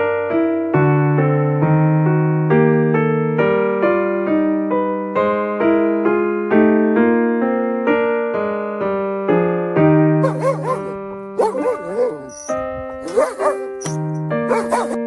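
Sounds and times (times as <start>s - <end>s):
electric piano melody: 0.0s - 15.0s.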